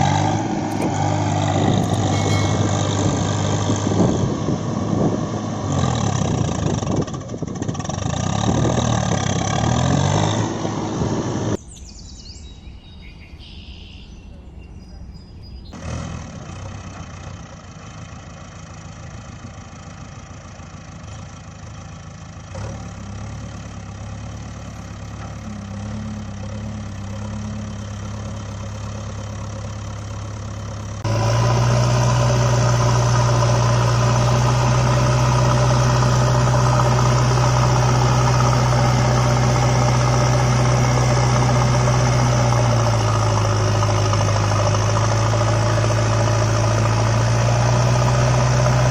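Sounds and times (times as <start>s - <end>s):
engine idling: 16.5s - 48.9s.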